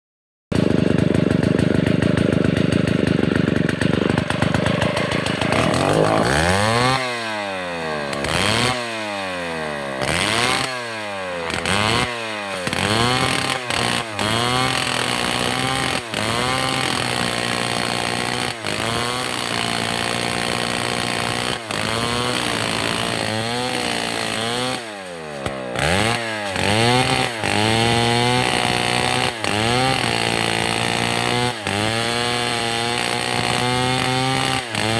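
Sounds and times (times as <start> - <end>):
chainsaw running: 0.5 - 34.9.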